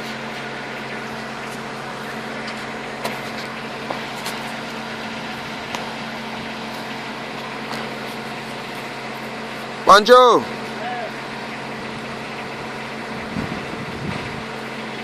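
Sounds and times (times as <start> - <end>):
engine running with steady hum: 0.0 - 15.0.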